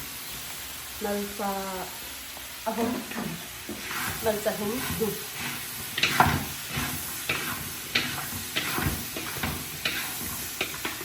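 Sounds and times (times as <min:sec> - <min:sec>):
food sizzling in a frying pan: 0:00.0 - 0:11.0
utensil scraping and knocking pan: 0:03.7 - 0:11.0.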